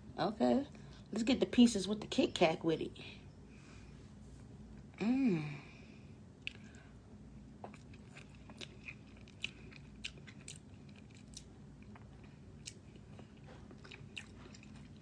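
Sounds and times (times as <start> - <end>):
chewing crunchy wafer: 7.6 - 15.0.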